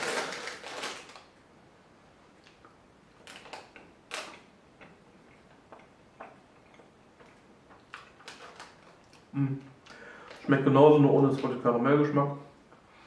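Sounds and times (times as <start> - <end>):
crunchy cookie chewing: 2.4 - 10.6.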